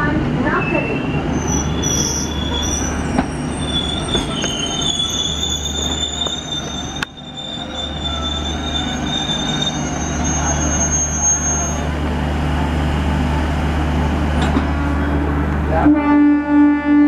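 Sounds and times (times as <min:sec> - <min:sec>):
vehicle rumbling: 0:00.0 - 0:15.9
high-pitched squealing tones: 0:00.6 - 0:12.0.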